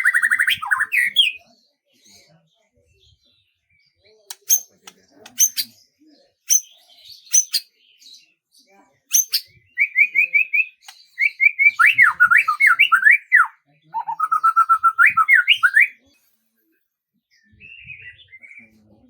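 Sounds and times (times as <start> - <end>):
songbird whistling: 4.3 - 5.7, 6.5 - 7.7, 9.1 - 16.0.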